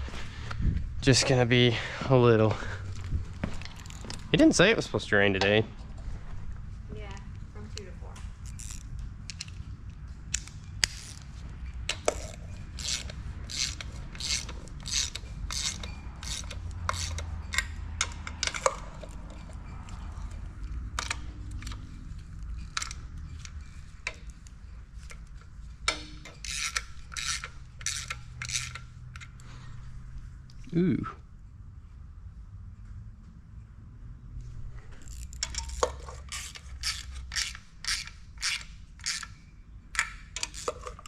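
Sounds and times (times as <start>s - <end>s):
hand tools scraping metal: 11.9s - 25.3s, 25.9s - 29.4s, 35.0s - 39.4s, 40.0s - 41.0s.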